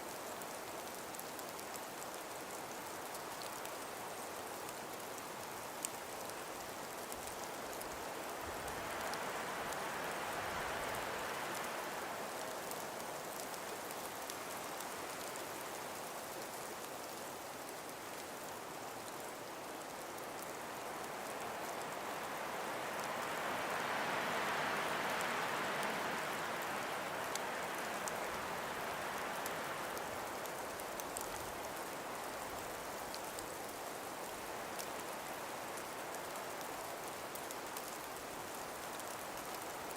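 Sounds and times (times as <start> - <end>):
breeze through trees: 0.0 - 39.9
faint ticks: 24.5 - 39.8.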